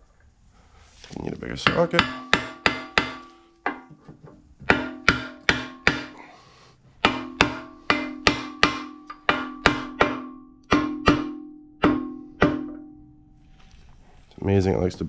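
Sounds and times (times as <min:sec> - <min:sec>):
hammer tapping on metal: 0:01.6 - 0:04.0, 0:04.6 - 0:06.3, 0:07.0 - 0:13.1.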